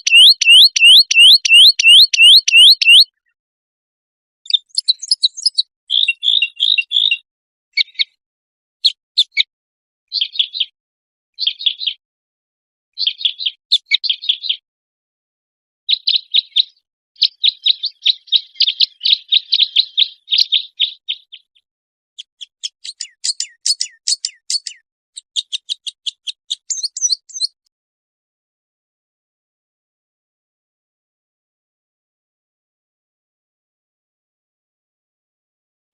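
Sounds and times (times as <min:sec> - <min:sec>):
songbird chirping and trilling: 0:00.0 - 0:03.4, 0:04.4 - 0:08.2, 0:08.8 - 0:09.5, 0:10.1 - 0:10.8, 0:11.4 - 0:12.0, 0:12.9 - 0:14.6, 0:15.9 - 0:27.6.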